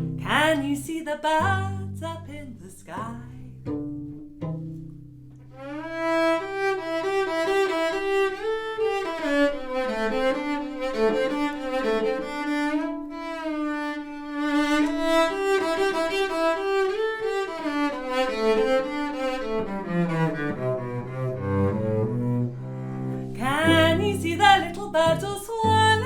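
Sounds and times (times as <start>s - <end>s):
bowed cello playing: 0.0s - 26.0s.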